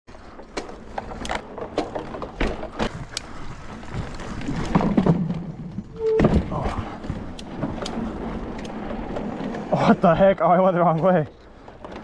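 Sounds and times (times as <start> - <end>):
tyre rumble on trail: 0.2 - 10.0
bike knocks and rattles: 0.3 - 9.6.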